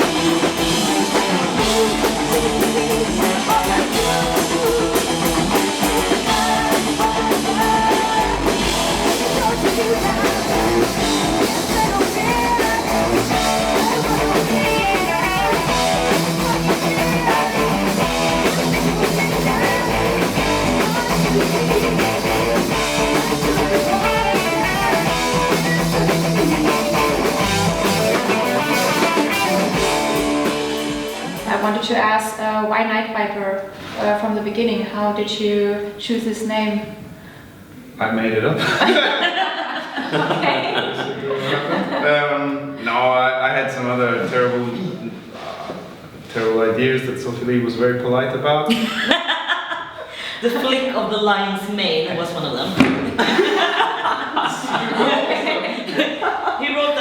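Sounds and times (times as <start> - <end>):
electric guitars: 0.0 - 32.0
heavy metal band playing: 0.0 - 32.0
drum kit: 0.0 - 32.1.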